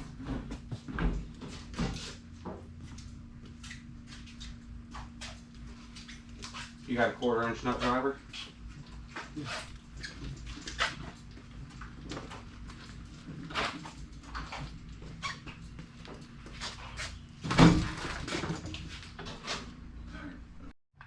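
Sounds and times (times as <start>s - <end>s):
tools and metal parts rattling: 17.8s - 19.6s.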